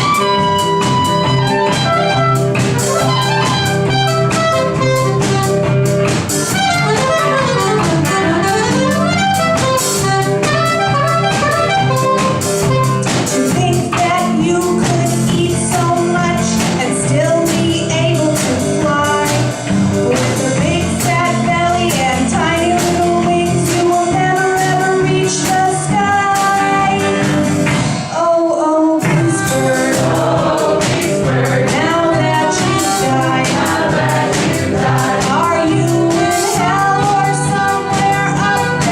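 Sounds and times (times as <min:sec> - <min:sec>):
saxophone: 0:00.0 - 0:16.6, 0:29.0 - 0:38.9
electric guitar: 0:00.0 - 0:28.3, 0:29.0 - 0:38.9
drums: 0:00.0 - 0:38.9
woman singing: 0:13.4 - 0:19.5, 0:20.1 - 0:27.3, 0:28.1 - 0:38.9.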